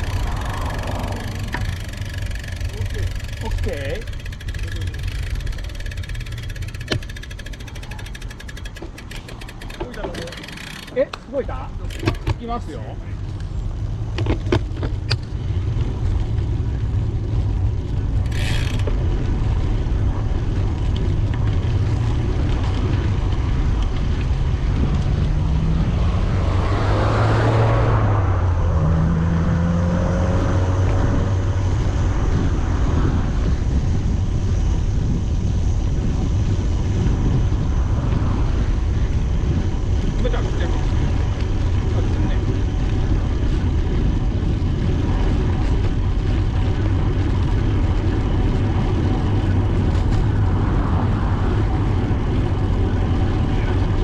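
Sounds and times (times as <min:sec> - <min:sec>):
motor vehicle passing: 0:00.0 - 0:14.2, 0:15.3 - 0:33.8
wind buffeting microphone: 0:00.0 - 0:54.0.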